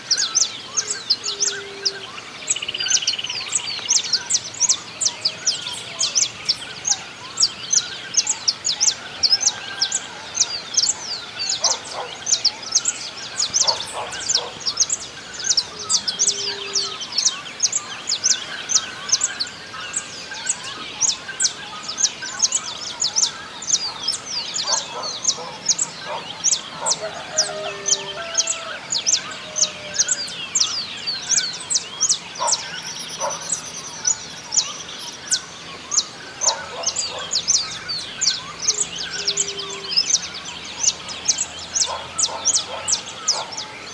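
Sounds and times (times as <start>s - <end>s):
songbirds chirping: 0.0s - 43.9s
chickens calling: 9.3s - 17.1s, 22.0s - 33.6s, 36.0s - 43.9s.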